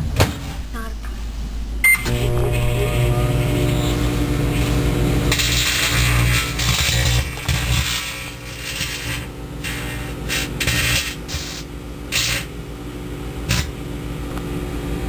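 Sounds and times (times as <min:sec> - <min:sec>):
microwave oven humming: 0:00.0 - 0:15.0.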